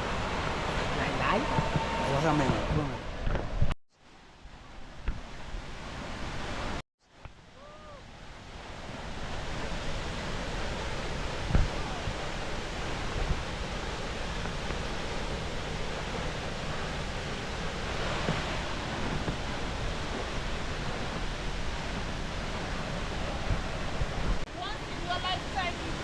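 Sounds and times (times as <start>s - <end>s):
waterfall rushing: 0.0s - 3.1s, 7.6s - 26.0s.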